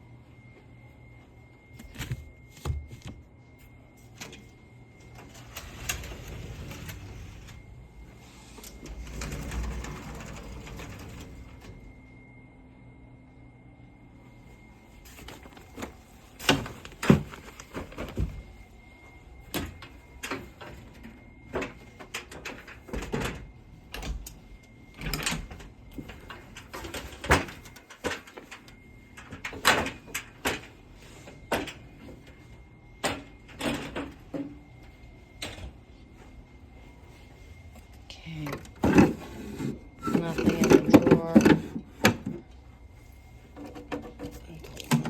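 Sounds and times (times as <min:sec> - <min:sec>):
doors and drawers opening and shutting: 0:04.2 - 0:12.0, 0:15.2 - 0:18.6, 0:19.4 - 0:32.4, 0:33.0 - 0:34.7, 0:38.4 - 0:42.7.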